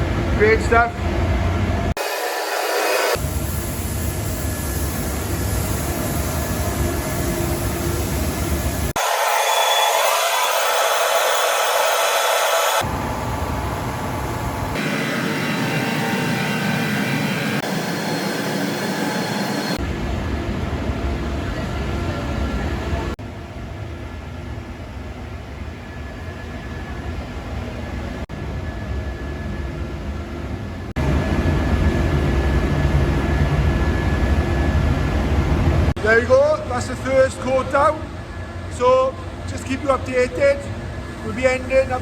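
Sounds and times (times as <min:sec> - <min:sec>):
extraction fans rushing air: 0:00.0 - 0:22.8
paint spray gun hissing: 0:03.1 - 0:12.9.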